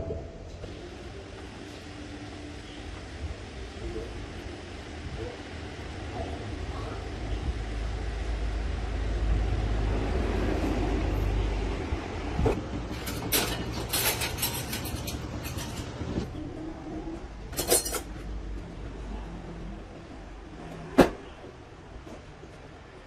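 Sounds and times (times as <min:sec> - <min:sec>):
truck engine rumbling: 0:00.0 - 0:22.2
sharp metallic clinks and knocks: 0:12.9 - 0:15.9, 0:17.5 - 0:18.1.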